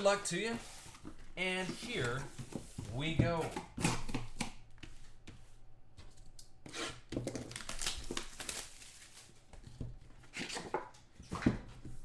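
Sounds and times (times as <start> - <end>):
packaging tearing and rustling: 6.9 - 9.7.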